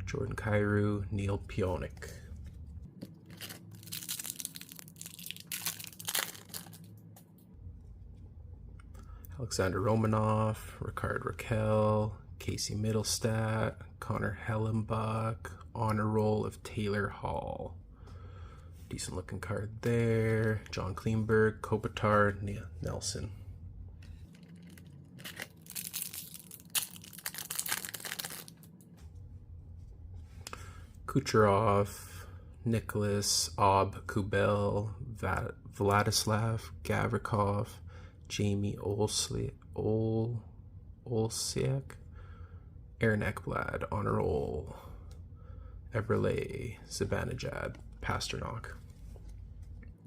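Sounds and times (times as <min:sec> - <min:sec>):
foil wrapper tearing and crinkling: 0:03.2 - 0:06.9, 0:24.3 - 0:28.6.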